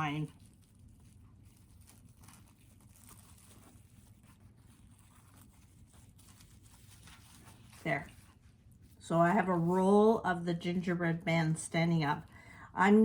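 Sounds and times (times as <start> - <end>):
plastic wrap rustling: 0.0 - 9.1.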